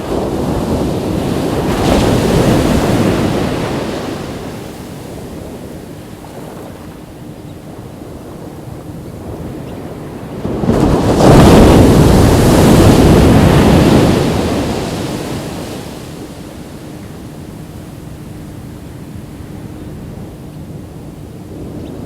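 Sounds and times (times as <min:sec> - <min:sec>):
ocean wave crashing on beach: 0:00.0 - 0:05.6, 0:10.2 - 0:18.2.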